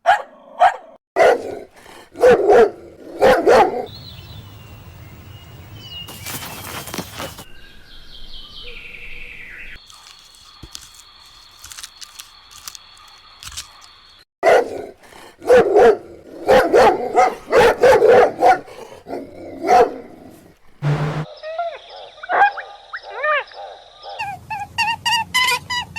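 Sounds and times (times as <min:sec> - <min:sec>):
steady high tone: 0:20.8 - 0:21.3.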